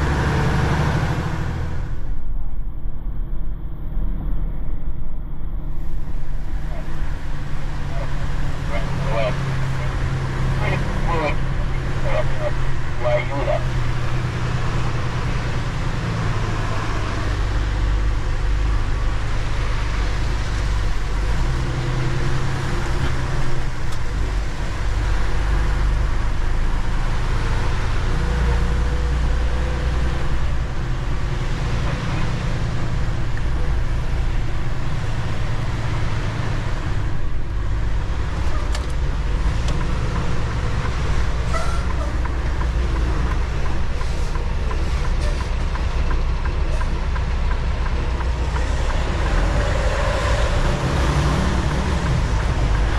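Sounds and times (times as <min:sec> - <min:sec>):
truck engine and road drone: 0:00.0 - 0:52.9.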